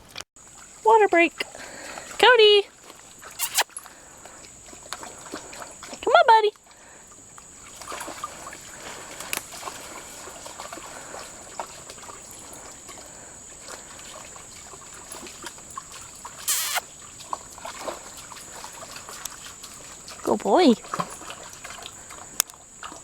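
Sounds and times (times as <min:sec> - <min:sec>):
dogs drinking and wading: 0:00.0 - 0:23.0
water trickling and splashing: 0:00.0 - 0:23.0
brief high pitched sound: 0:16.5 - 0:16.8.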